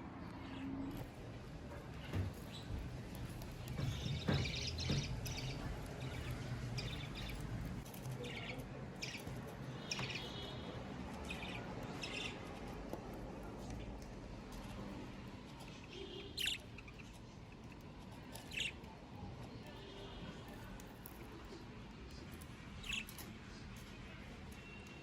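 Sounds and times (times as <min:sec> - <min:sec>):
budgerigars chirping: 0:02.1 - 0:07.6, 0:08.2 - 0:12.5, 0:15.9 - 0:17.2, 0:18.3 - 0:18.8.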